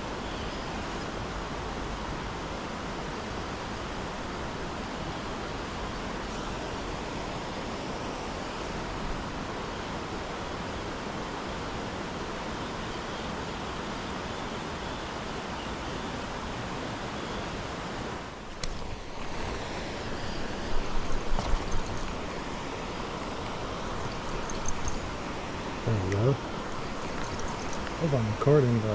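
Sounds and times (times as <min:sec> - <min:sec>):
fast-flowing river water: 0:18.4 - 0:28.9.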